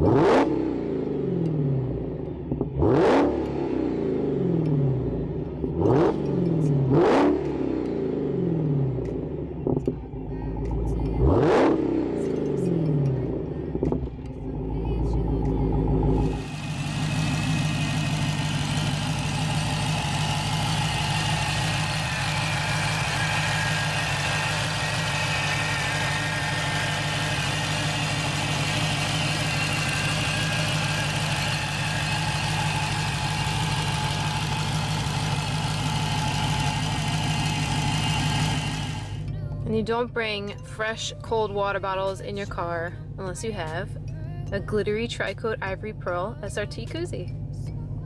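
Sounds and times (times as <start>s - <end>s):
car engine idling: 12.2s - 48.0s.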